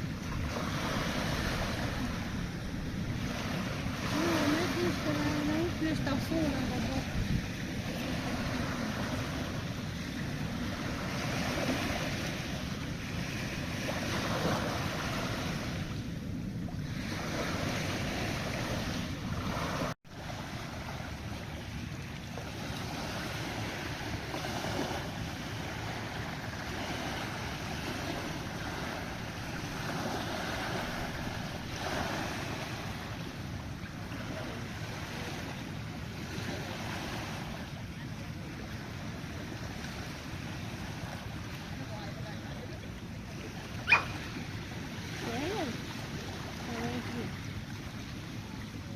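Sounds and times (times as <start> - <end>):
wind on microphone: 0.0 - 20.0
sea waves: 0.0 - 48.9.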